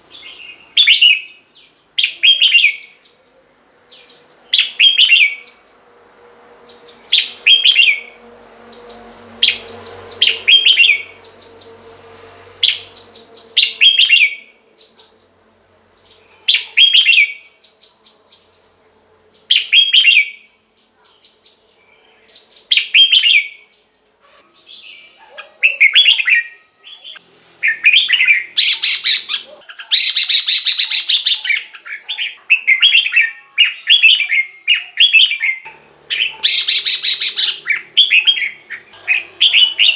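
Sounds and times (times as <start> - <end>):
bulbul singing: 0.0 - 5.7, 6.6 - 15.3, 15.9 - 18.6, 19.3 - 39.9.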